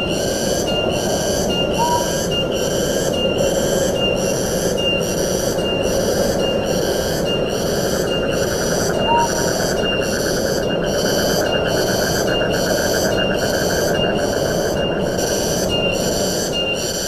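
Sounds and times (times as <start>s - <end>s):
shrill pulsing insect call: 0.0s - 17.0s
bird note: 1.5s - 2.4s, 9.0s - 9.5s.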